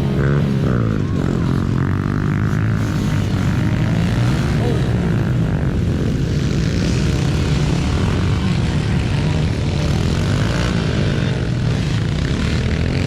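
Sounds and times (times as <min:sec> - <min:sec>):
dirt bike engines buzzing: 0:00.0 - 0:13.0.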